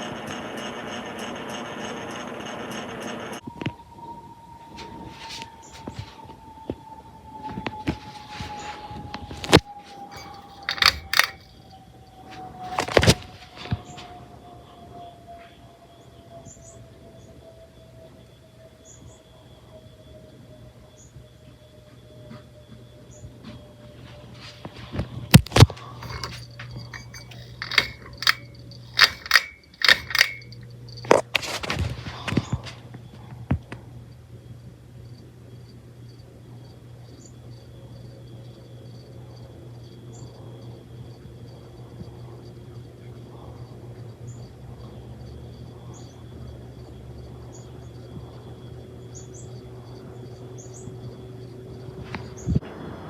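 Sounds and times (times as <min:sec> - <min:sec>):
ceiling fan motor hum: 0:00.0 - 0:03.4, 0:08.4 - 0:13.5, 0:23.4 - 0:53.0
sharp metallic clicks and clinks: 0:09.5 - 0:11.8, 0:25.4 - 0:31.6.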